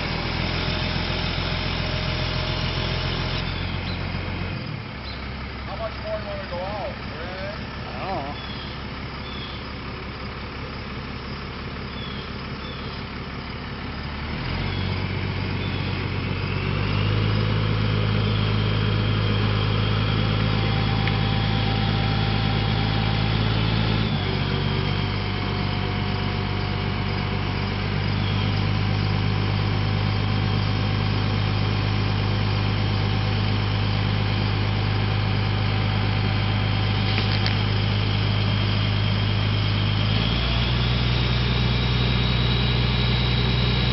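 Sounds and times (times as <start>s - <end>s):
truck engine idling and revving: 0.0s - 43.9s.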